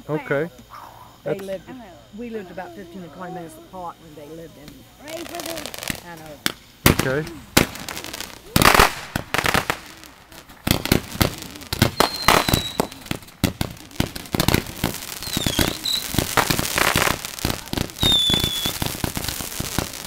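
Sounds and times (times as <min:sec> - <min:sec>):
firecrackers popping and crackling: 0:04.0 - 0:20.0
short high firework whistles: 0:05.2 - 0:20.0.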